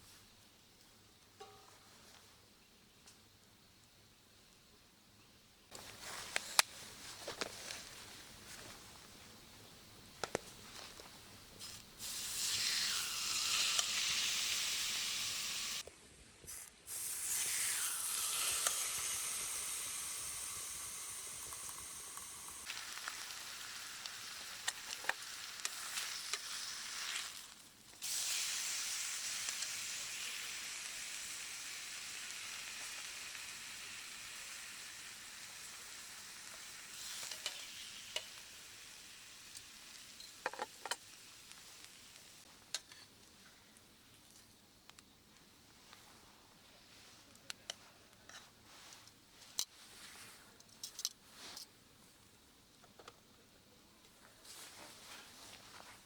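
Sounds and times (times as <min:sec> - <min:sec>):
steak sizzling in a frying pan: 0:11.6 - 0:15.8, 0:16.9 - 0:42.4
pops and crackles: 0:15.8 - 0:28.7.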